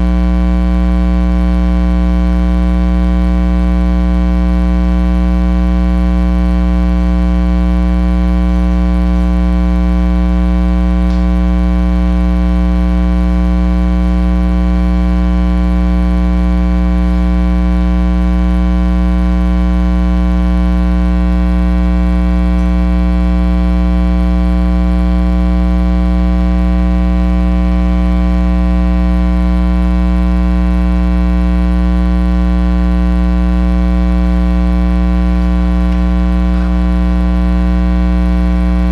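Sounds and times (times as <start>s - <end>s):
electrical mains hum: 0.0s - 18.4s, 20.7s - 24.8s, 32.0s - 38.9s.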